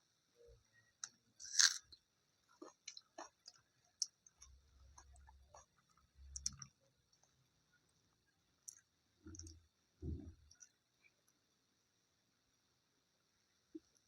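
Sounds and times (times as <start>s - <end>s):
soft chewing: 1.0s - 9.7s, 10.3s - 11.4s.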